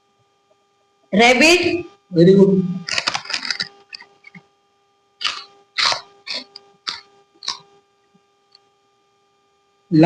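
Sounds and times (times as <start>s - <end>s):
faint electrical hum: 0.0s - 10.0s
person coughing: 5.2s - 7.6s.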